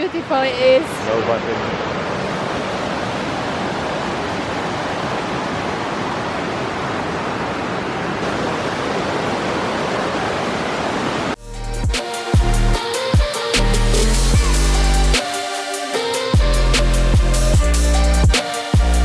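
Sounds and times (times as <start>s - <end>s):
waterfall rushing: 0.0s - 11.4s
electronic music with a beat: 11.4s - 19.0s.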